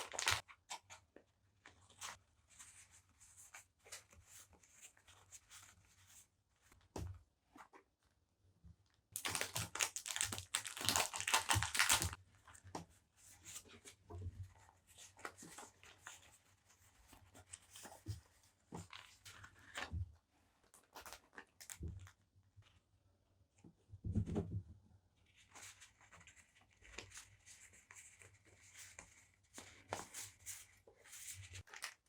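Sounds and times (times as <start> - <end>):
paper packaging tearing: 0.0 - 0.4, 9.2 - 12.2.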